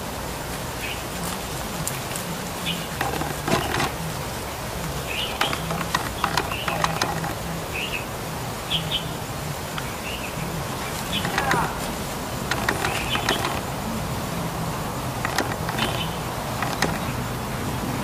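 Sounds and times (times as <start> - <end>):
songbirds chirping: 0.5 - 18.0
sharp clicks: 5.2 - 7.6, 10.8 - 13.8, 15.2 - 17.2.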